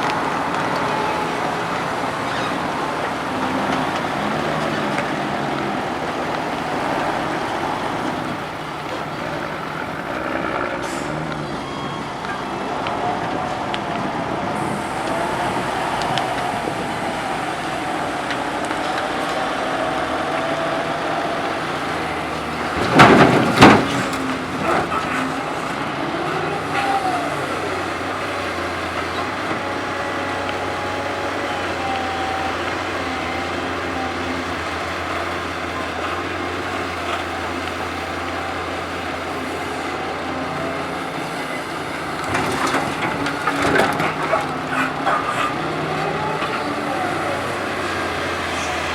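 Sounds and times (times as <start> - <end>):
excavator diesel engine running: 0.0 - 48.9
hydraulic whine: 0.0 - 48.9
soil crashing into truck bed: 22.0 - 25.3
clattering: 22.6 - 25.2.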